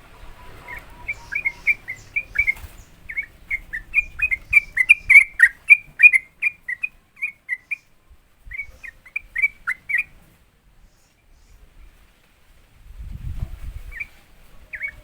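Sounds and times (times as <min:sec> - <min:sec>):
bird singing whistled notes: 0:00.0 - 0:10.1.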